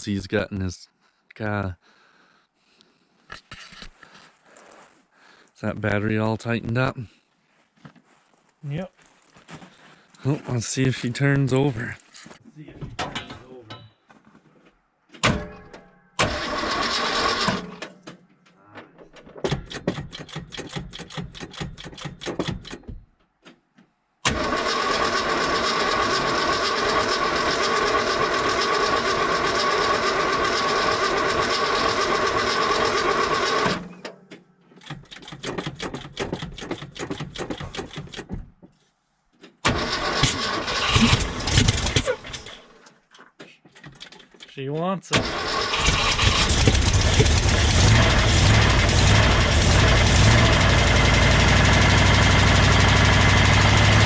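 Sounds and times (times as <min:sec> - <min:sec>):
starter motor cranking engine: 0:16.2 - 0:17.8, 0:24.2 - 0:34.0, 0:34.8 - 0:38.3, 0:39.6 - 0:42.7, 0:45.1 - 0:54.0.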